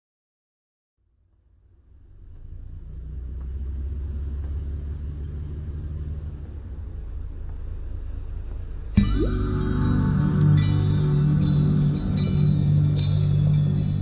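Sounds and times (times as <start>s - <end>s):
low steady rumble: 1.0s - 14.0s.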